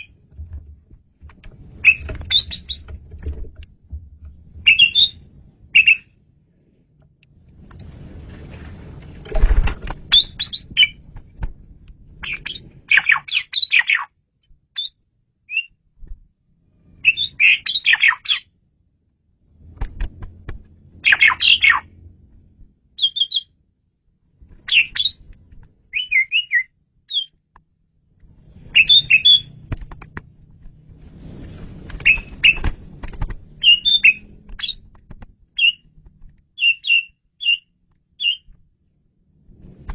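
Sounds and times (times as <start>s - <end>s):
low rumbling noise: 0.0s - 13.0s, 18.5s - 25.9s, 27.7s - 36.6s, 38.6s - 39.9s
starling singing: 4.7s - 5.2s, 5.8s - 6.0s, 21.0s - 21.9s, 24.7s - 25.2s, 28.7s - 29.5s, 33.6s - 34.8s, 35.6s - 35.8s, 36.6s - 38.5s.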